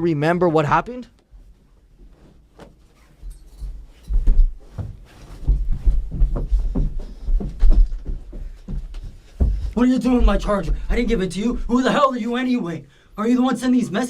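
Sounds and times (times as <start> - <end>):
soft thumps and knocks: 3.7 - 11.1.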